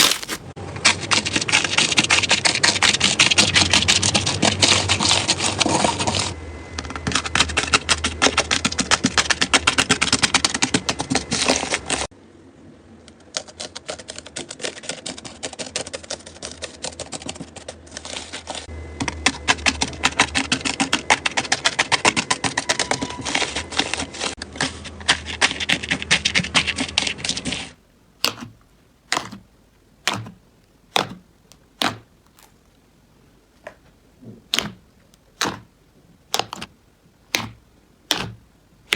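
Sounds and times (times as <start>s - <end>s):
slime popping sharply: 0.0s - 0.4s, 28.2s - 32.6s, 34.5s - 35.7s, 36.3s - 36.7s, 37.3s - 38.9s
slime crackling and clicking: 28.1s - 38.9s.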